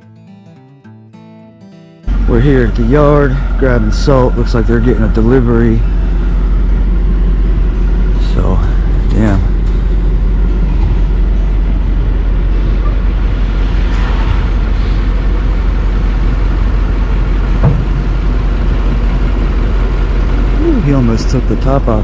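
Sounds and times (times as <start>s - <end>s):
diesel engine rumbling: 2.1s - 22.0s.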